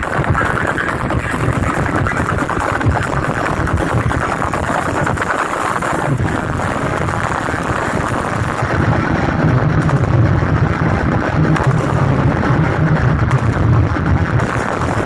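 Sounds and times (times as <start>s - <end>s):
distorted bass-heavy music: 0.0s - 15.0s.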